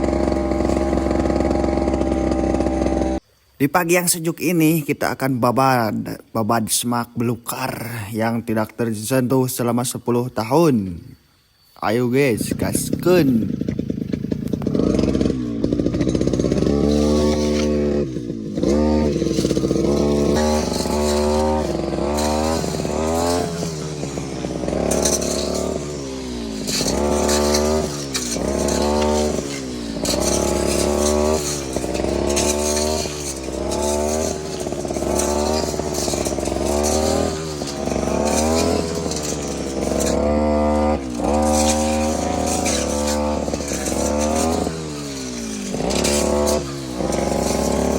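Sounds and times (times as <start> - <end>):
brush cutter engine revving: 0.0 - 3.2, 12.0 - 47.9.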